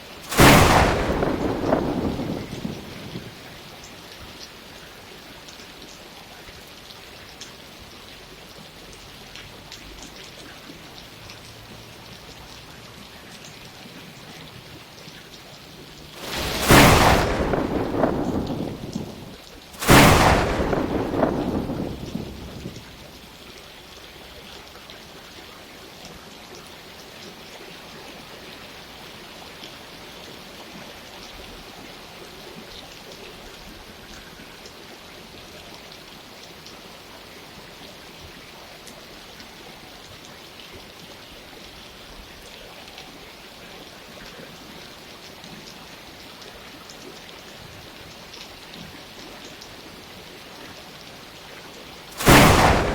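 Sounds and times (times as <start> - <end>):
rain falling: 0.0 - 52.9
thunderclaps: 0.2 - 3.6, 16.2 - 23.1, 52.2 - 52.9.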